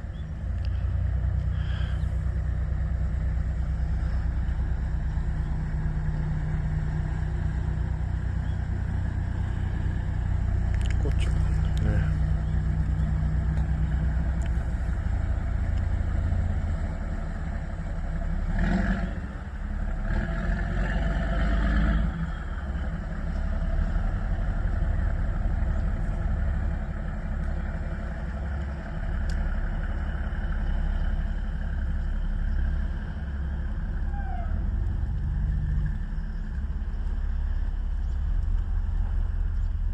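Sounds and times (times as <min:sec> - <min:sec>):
engine rumbling: 0:00.0 - 0:39.9.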